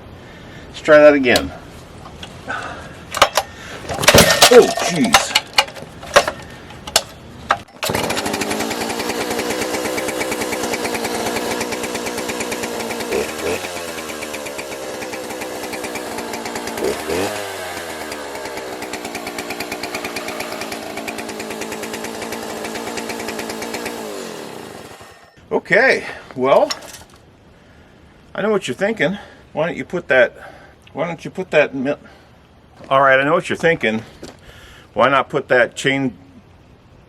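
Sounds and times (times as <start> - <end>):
chainsaw starter clicks: 3.1 - 25.2
chainsaw running and revving: 7.8 - 25.4.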